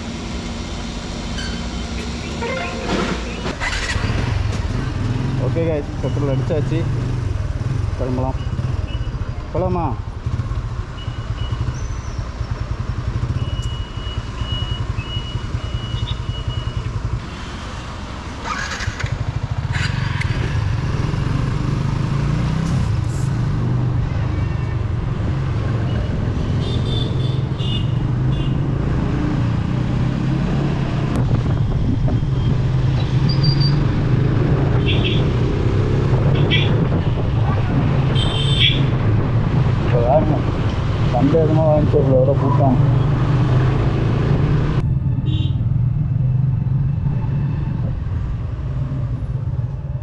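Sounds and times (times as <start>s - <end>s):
short high beeps: 2.2s - 3.5s.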